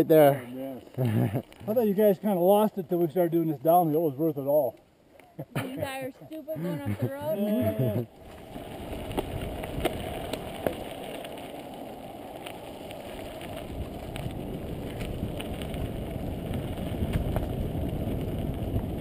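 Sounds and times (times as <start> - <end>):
bike tyres rumbling on dirt: 7.6 - 19.0
wind on microphone: 7.7 - 19.0
bike clicking and rattling: 8.2 - 19.0.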